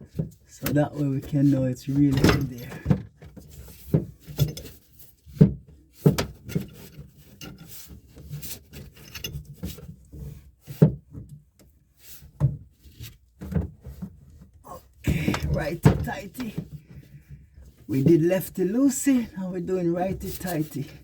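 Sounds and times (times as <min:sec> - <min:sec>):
wrench rubbing and scraping: 0:06.0 - 0:10.8, 0:19.9 - 0:21.0.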